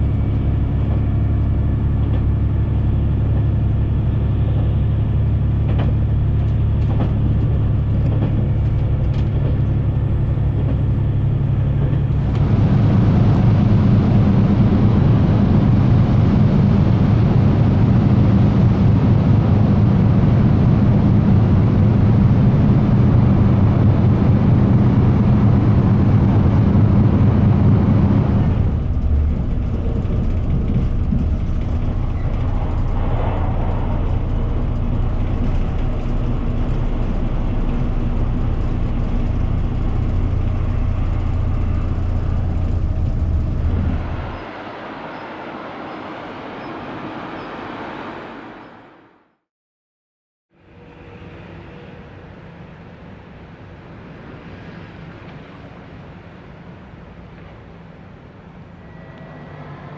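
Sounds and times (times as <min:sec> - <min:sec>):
train rumble: 0:00.0 - 0:49.2, 0:50.6 - 0:59.9
train running hum: 0:00.0 - 0:49.4, 0:50.6 - 0:59.9
thin high whine: 0:32.0 - 0:36.1, 0:58.6 - 0:59.9.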